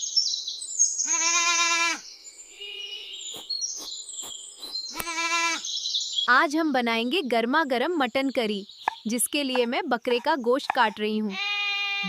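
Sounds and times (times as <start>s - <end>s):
birds chirping: 0.0s - 11.8s
goat bleating: 1.0s - 2.0s, 4.9s - 5.6s, 11.3s - 12.0s.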